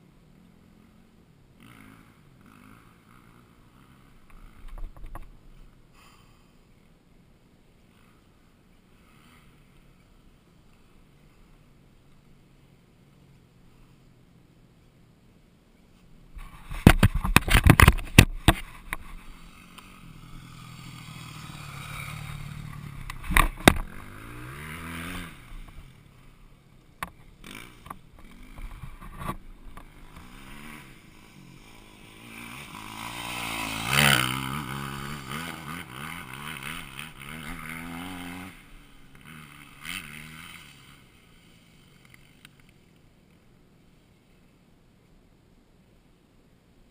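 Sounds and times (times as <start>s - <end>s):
dirt bike engine revving: 1.6s - 4.6s, 16.6s - 42.4s.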